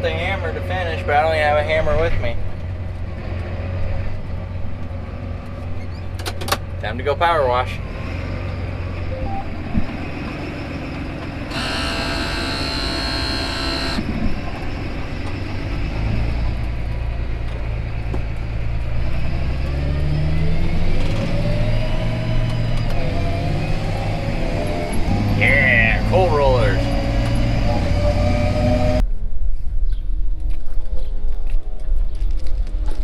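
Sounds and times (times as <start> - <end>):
vehicle engine hum: 0.0 - 29.1
higher whining sound: 11.5 - 14.4.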